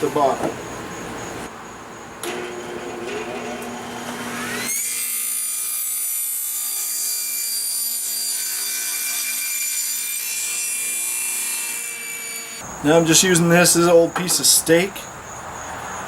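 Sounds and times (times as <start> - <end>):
power saw cutting wood: 2.2 - 12.6.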